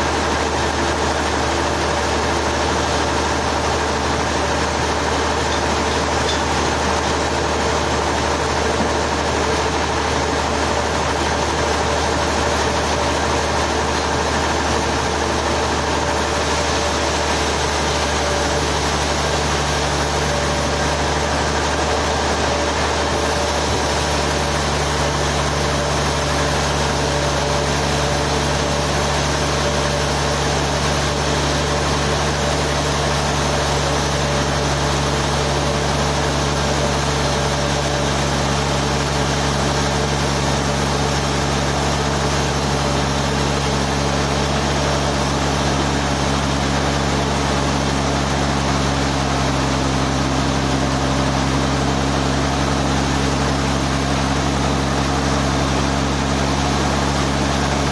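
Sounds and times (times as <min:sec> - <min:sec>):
sawmill machinery hum: 0:00.0 - 0:57.9.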